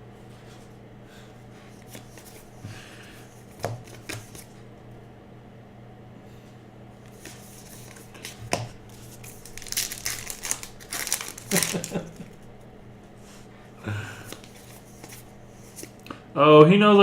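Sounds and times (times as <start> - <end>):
wrapper crinkling: 7.3 - 12.4.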